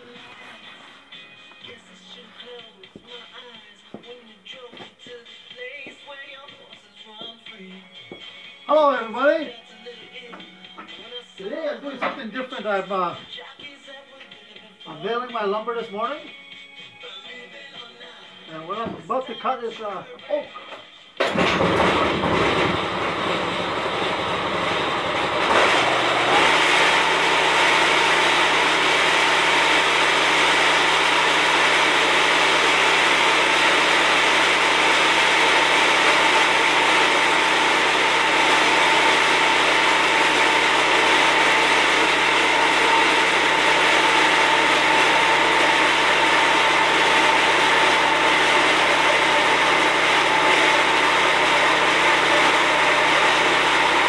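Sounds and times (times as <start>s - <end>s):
band sawmill cutting log: 21.2s - 54.0s
steady saw whine: 21.6s - 54.0s.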